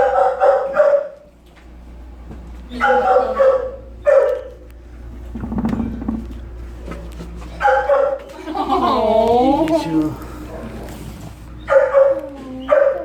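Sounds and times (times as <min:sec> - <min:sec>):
dogs barking: 0:00.0 - 0:01.3, 0:02.7 - 0:04.7, 0:07.5 - 0:09.1, 0:11.5 - 0:13.0.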